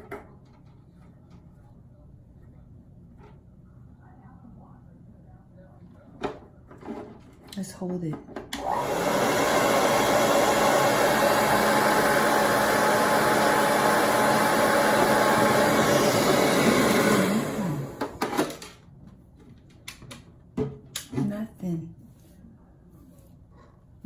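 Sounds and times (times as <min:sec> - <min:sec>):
hair dryer blowing: 0:08.6 - 0:18.3.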